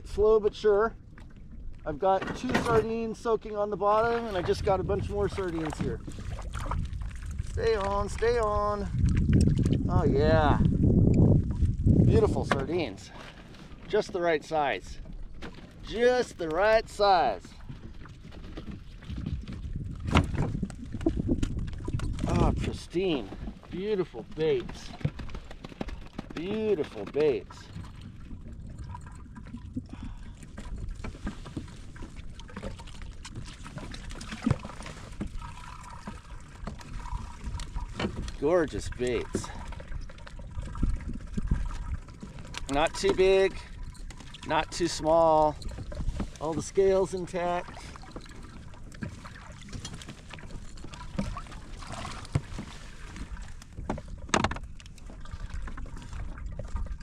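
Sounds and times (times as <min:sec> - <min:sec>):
rumble of wind and water: 0:00.0 - 0:57.0
knocks and clatter on kayak: 0:01.0 - 0:57.0.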